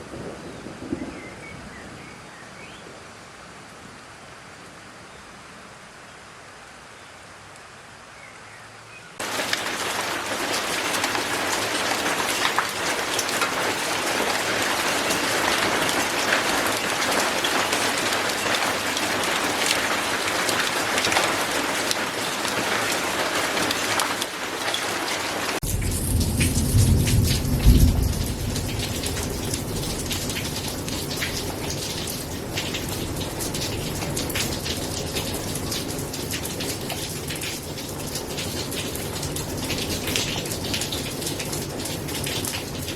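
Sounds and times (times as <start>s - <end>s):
heavy rain falling: 9.2s - 42.9s.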